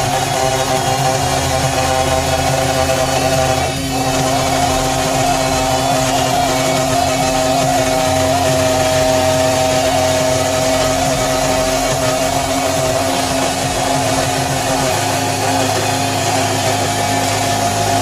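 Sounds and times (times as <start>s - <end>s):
small spindle motor running: 0.0s - 18.0s.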